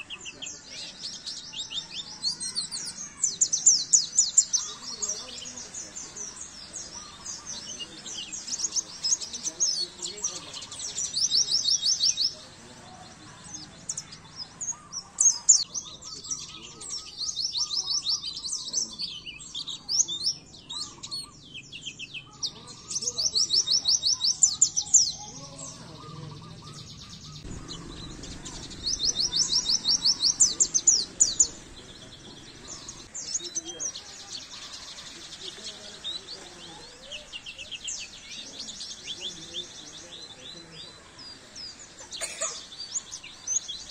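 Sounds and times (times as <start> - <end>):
bird singing high chirps: 0.0 - 43.9.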